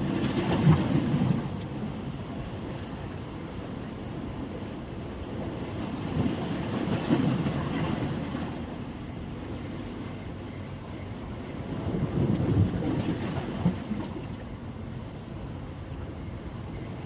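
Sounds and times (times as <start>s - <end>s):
wind buffeting microphone: 4.2s - 14.4s.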